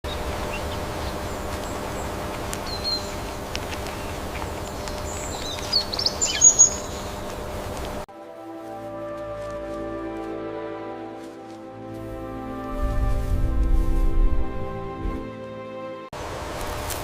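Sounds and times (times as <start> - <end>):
birds chirping: 0.0 - 8.0
music with held notes: 8.1 - 16.1.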